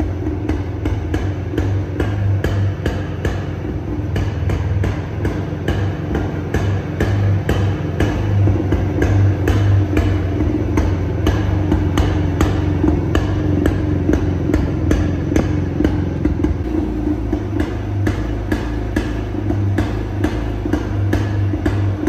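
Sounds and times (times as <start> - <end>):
motorcycle engine idling with knocks: 0.0 - 22.0.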